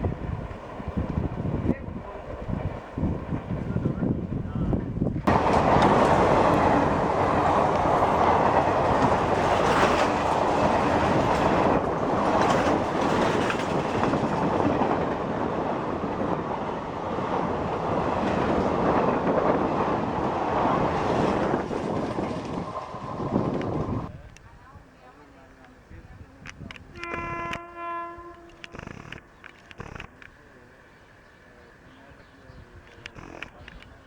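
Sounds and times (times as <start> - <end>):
train passing at speed: 0.0 - 32.9
wheels clattering over rail joints: 5.3 - 16.4.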